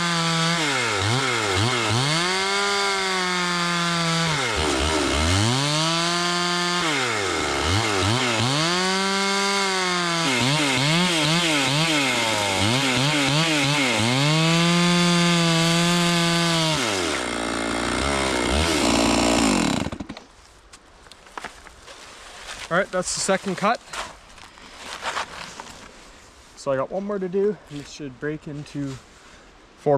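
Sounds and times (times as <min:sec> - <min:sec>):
chainsaw cutting log: 0:00.0 - 0:20.3.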